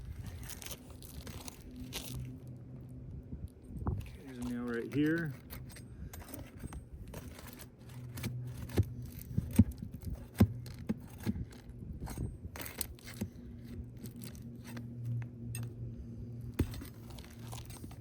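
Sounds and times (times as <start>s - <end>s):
steady low hum: 0.0s - 18.0s
metal bar scraping under shingles: 4.0s - 15.8s, 16.6s - 18.0s.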